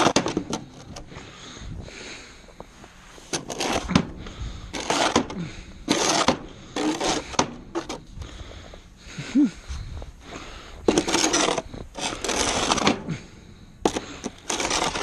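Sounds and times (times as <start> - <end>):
snow shovel scraping pavement: 2.8 - 8.0, 10.3 - 15.0.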